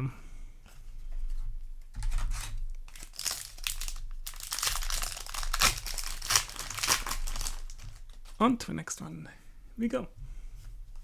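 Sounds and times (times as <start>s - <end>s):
foil wrapper crinkling: 2.4s - 8.4s.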